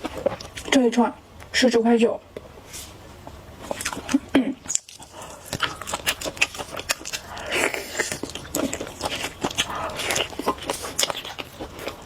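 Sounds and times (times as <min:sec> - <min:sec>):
biting and chewing: 0:00.0 - 0:00.8, 0:03.3 - 0:12.0.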